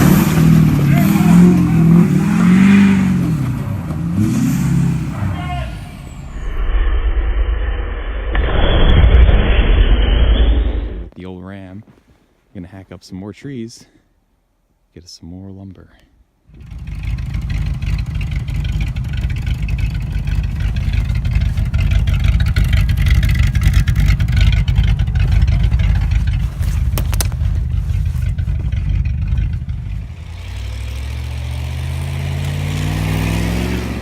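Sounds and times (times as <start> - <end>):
truck engine rumbling: 0.0 - 6.6, 16.5 - 34.0
engine knock: 16.6 - 30.0.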